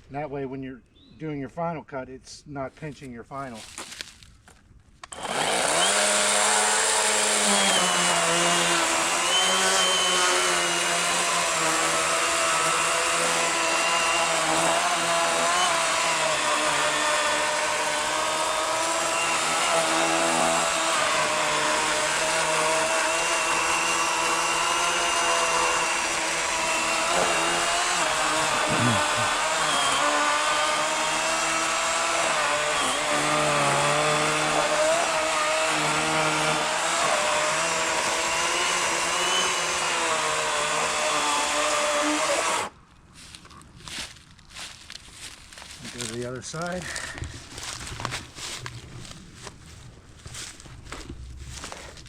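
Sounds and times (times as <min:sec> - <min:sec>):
electric chainsaw cutting log: 0:05.0 - 0:42.8.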